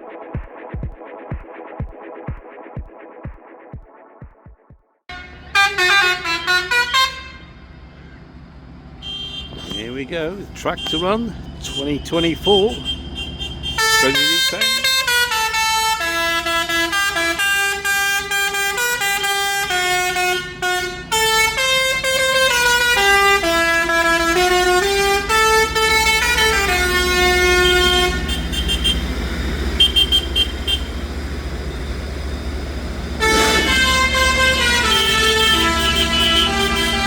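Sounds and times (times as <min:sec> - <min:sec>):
musical vehicle horn tune: 0:05.1 - 0:07.7, 0:08.9 - 0:31.6, 0:33.2 - 0:37.0
engines rumbling: 0:05.1 - 0:37.0.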